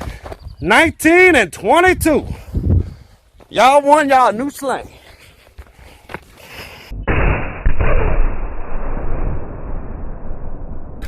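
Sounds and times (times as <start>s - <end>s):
dull rumbling after explosion: 6.9s - 11.0s.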